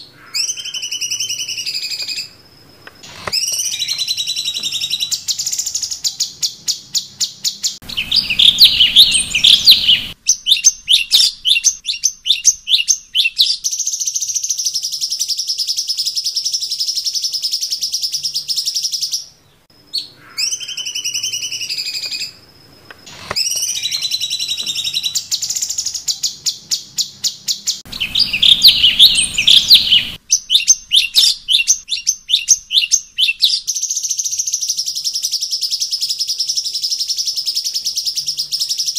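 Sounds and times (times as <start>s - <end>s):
songbird singing trills and whistles: 0.0s - 22.4s, 23.0s - 38.9s
harsh bird chattering: 7.8s - 12.5s, 27.9s - 33.0s.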